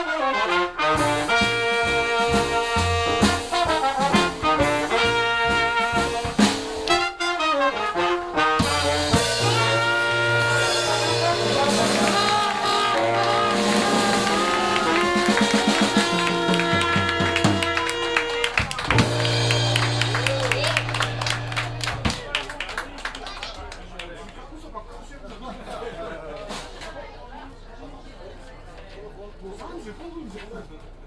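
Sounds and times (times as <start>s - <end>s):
jazz band playing: 0.0s - 23.5s.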